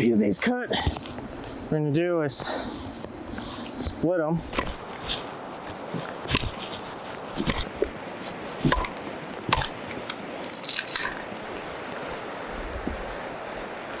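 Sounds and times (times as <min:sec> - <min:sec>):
blade knocking into wood: 0:08.6 - 0:09.8.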